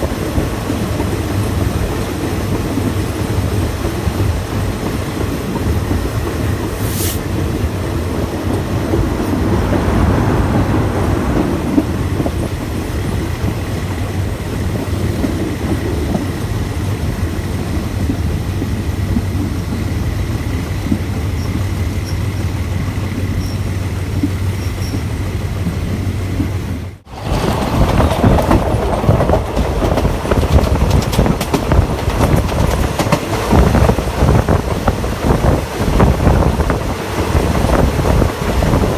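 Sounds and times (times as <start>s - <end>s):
train wheels rumbling on rail: 0.0s - 38.9s
wind rushing: 6.1s - 15.2s.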